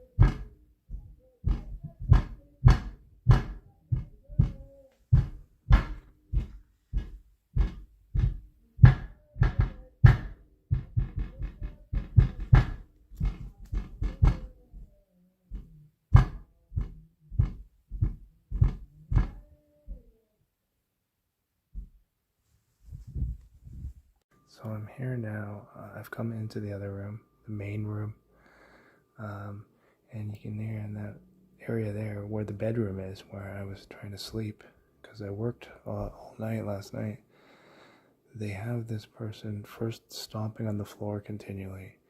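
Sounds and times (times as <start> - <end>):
heavy stomping on floor: 0.1 - 14.5, 15.5 - 19.4.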